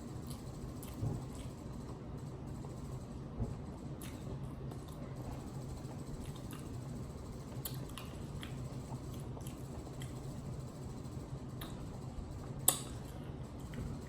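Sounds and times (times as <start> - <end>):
chewing with wet smacks: 0.2 - 2.0, 4.0 - 14.0.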